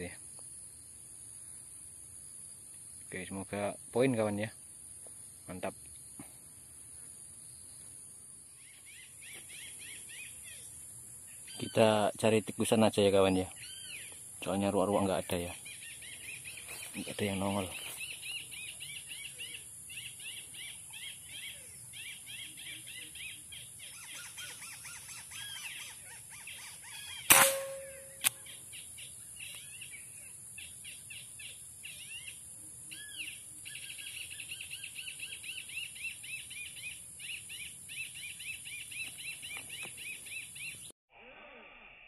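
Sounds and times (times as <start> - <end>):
steady high-pitched hiss: 0.0 - 40.9
small birds chirping: 2.4 - 40.9
air rifle shot: 27.3 - 28.4.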